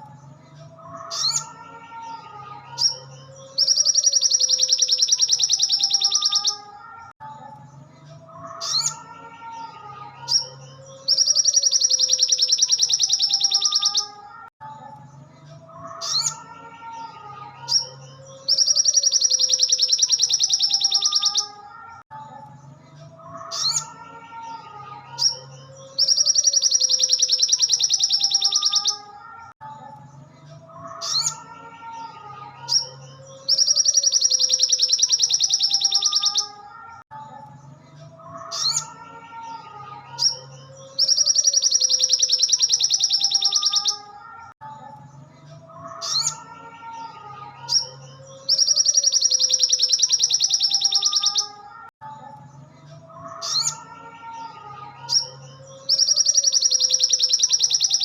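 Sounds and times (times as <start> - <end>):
sharp high bird chirps: 2.7 - 6.8, 10.2 - 14.3, 17.6 - 21.7, 25.2 - 29.2, 32.6 - 37.0, 40.1 - 44.2, 47.7 - 51.9, 55.1 - 58.0.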